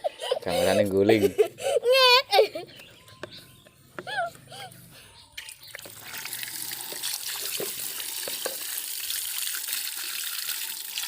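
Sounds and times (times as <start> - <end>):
water drops plinking: 5.4 - 8.8.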